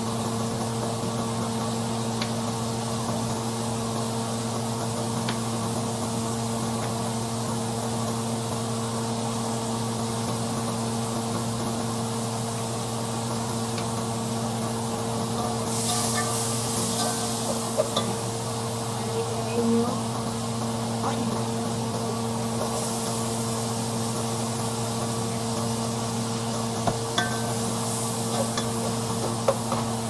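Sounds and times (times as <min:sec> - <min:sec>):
appliance hum: 0:00.0 - 0:30.0
food sizzling in a pan: 0:15.0 - 0:20.6, 0:21.3 - 0:30.0.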